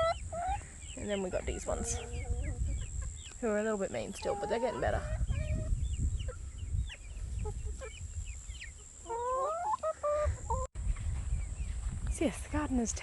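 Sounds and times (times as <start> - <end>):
chickens clucking and chirping: 0.0 - 12.9
wavering chicken call: 9.0 - 10.7.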